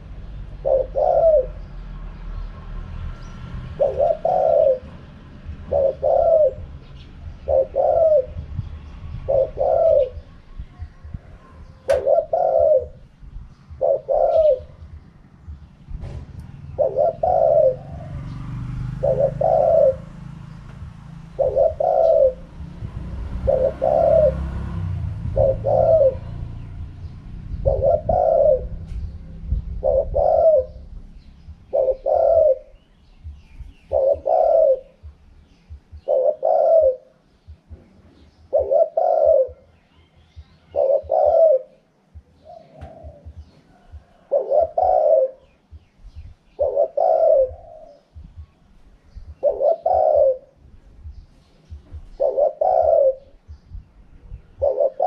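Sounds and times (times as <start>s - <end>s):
dove cooing: 0.0s - 2.6s, 3.2s - 55.0s
low rumble: 4.8s - 18.6s, 19.8s - 36.4s, 47.3s - 49.6s, 50.5s - 52.2s, 53.2s - 54.7s.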